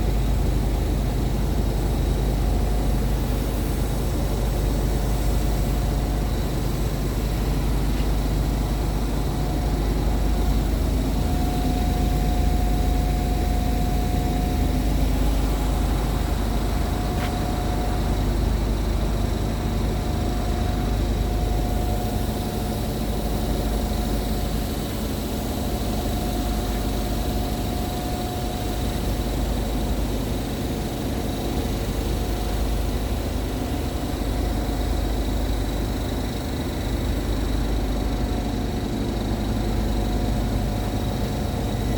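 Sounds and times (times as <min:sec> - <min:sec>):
faint steady whine: 0:00.0 - 0:41.9
diesel truck engine idling: 0:04.8 - 0:29.8.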